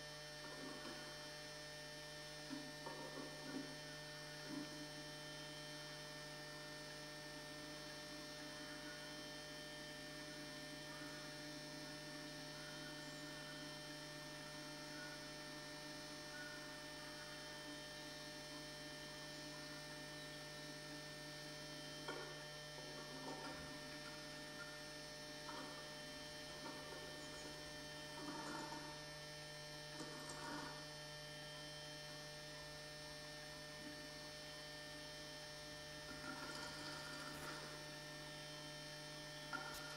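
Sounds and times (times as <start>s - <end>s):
electrical mains hum: 0.0s - 39.9s
faint scratches and rustles: 25.3s - 31.6s.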